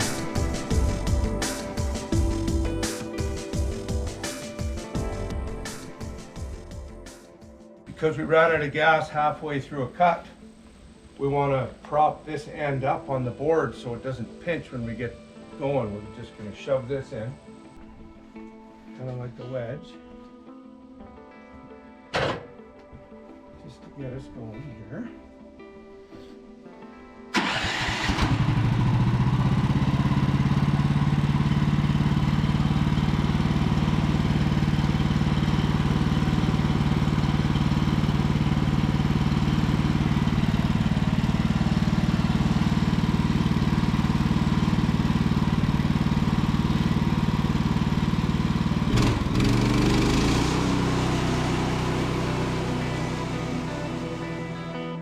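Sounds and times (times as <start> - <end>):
gasoline engine starting and running: 0.0 - 7.2, 27.3 - 55.0.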